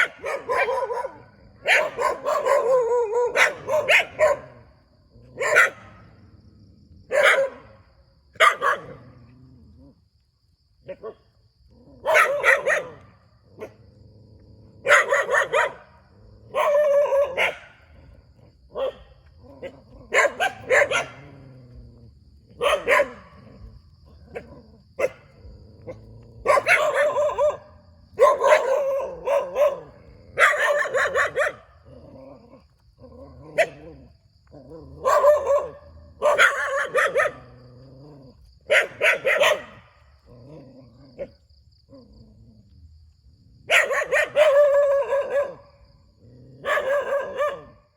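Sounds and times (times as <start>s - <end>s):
dog barking: 0.0s - 6.1s, 7.1s - 9.0s, 10.8s - 11.3s, 11.9s - 13.8s, 14.8s - 18.0s, 18.7s - 21.4s, 22.5s - 31.8s, 33.5s - 33.9s, 34.9s - 37.6s, 38.6s - 40.0s, 43.6s - 45.8s, 46.6s - 47.9s.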